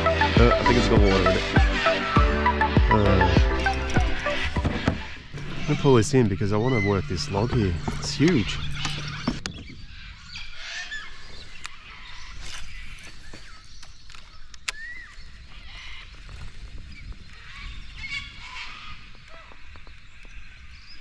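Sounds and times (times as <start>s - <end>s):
cockatoos squawking and screeching: 0.0s - 13.6s, 17.3s - 19.9s.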